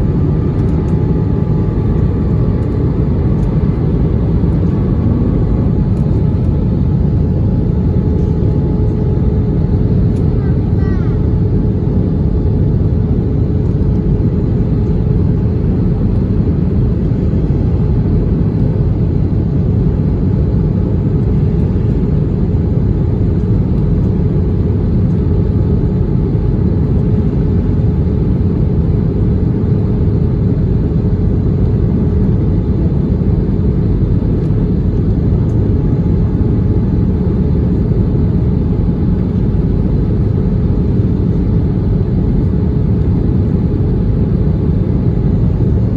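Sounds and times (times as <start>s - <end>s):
aircraft engine rumble: 0.0s - 45.9s.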